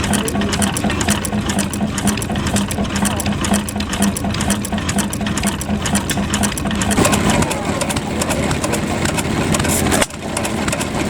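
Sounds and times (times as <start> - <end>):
pulsing low hum: 0.0 - 8.2
engines mechanical clatter: 0.0 - 11.0.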